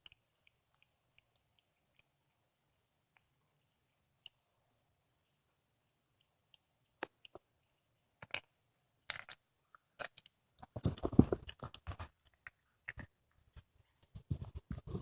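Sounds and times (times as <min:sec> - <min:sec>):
cat chewing and crunching bones: 0:09.1 - 0:15.0.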